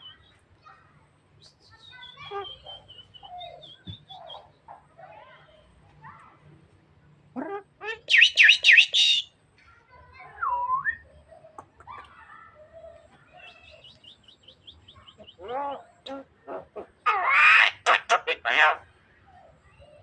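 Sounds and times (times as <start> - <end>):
myna calling: 7.3 - 9.3, 12.8 - 20.0.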